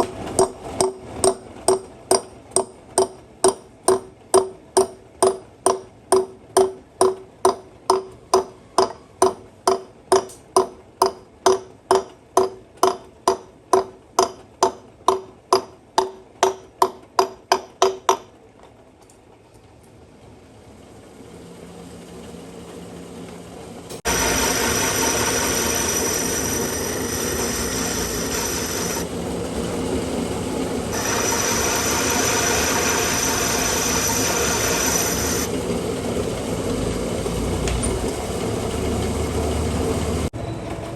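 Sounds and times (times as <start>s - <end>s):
hammer ringing on metal: 0.4s - 18.2s
lathe machining: 24.0s - 40.3s.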